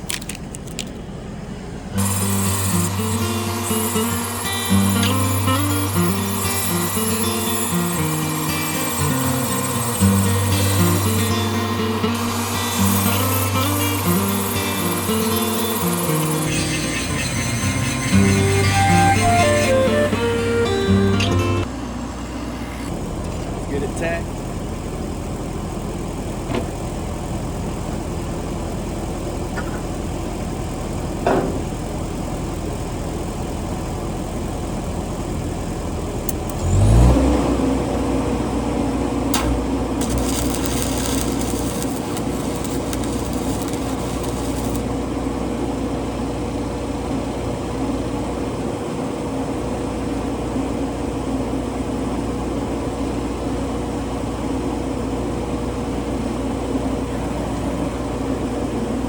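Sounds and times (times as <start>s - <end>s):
welding machine engine running: 2.0s - 20.1s, 39.3s - 45.2s
high hiss: 39.4s - 44.9s.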